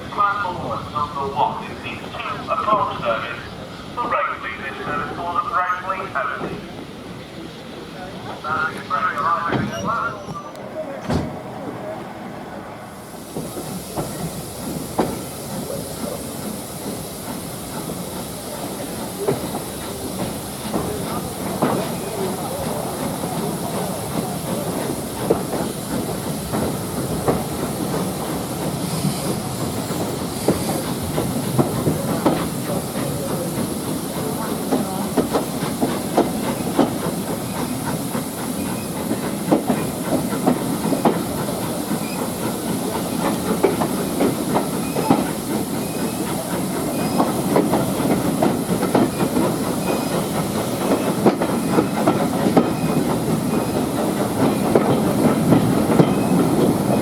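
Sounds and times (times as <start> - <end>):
steam hissing: 11.2 - 57.0
wheels clattering over rails: 20.7 - 57.0.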